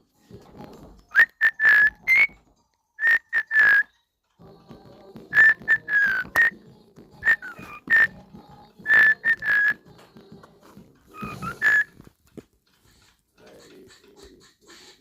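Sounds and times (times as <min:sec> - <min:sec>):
cockatiel whistling: 0:01.1 - 0:02.4, 0:03.0 - 0:04.0, 0:05.3 - 0:06.6, 0:07.2 - 0:08.2, 0:08.8 - 0:09.8, 0:11.1 - 0:12.1.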